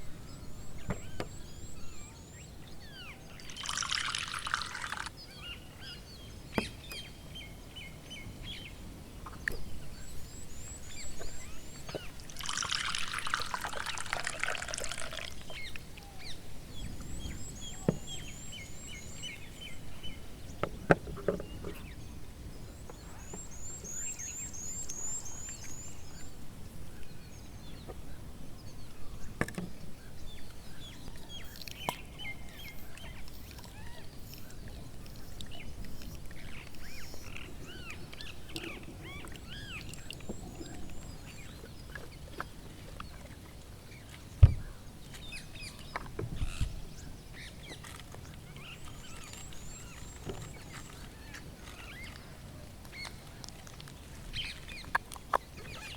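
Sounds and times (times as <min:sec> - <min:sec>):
small birds chirping: 0:00.0 - 0:55.9
sharp low thump: 0:44.4 - 0:44.7.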